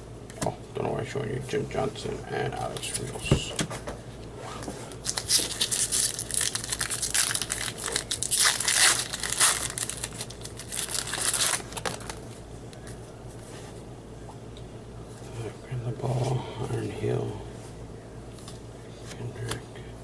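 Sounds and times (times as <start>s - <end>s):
foil wrapper tearing and crinkling: 4.9s - 12.3s.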